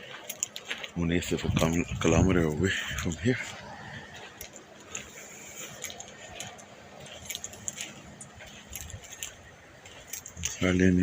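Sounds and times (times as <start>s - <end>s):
phone handling clicks and jingling: 5.8s - 10.6s.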